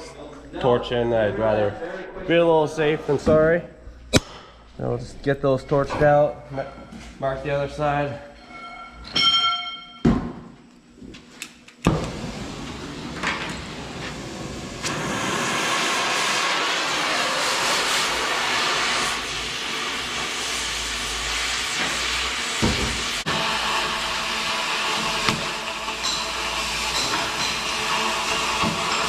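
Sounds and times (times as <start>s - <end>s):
cutting torch hissing: 11.8s - 29.0s.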